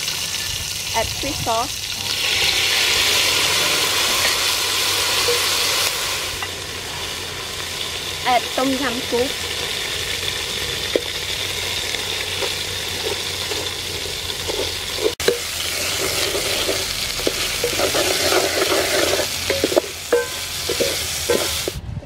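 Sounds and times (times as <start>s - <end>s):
food sizzling in hot oil: 0.0s - 21.8s
wooden ladle scraping pot: 2.0s - 6.5s, 10.5s - 21.8s.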